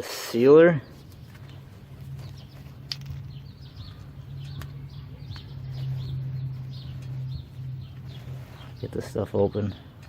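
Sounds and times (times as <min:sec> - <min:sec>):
small birds chirping: 0:00.4 - 0:10.0
steady low hum: 0:00.8 - 0:10.0.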